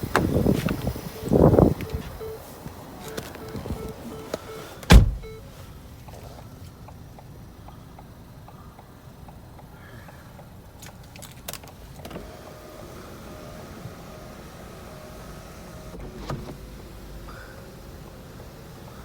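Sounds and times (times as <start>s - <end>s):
sunroof thunk: 0.0s - 2.2s, 3.1s - 5.5s.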